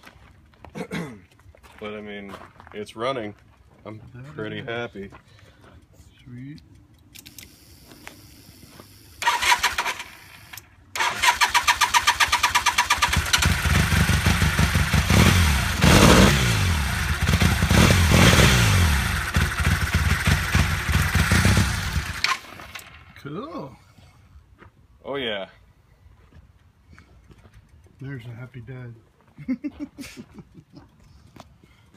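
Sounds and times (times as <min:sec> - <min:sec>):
engine starter cranking: 0:09.2 - 0:14.5.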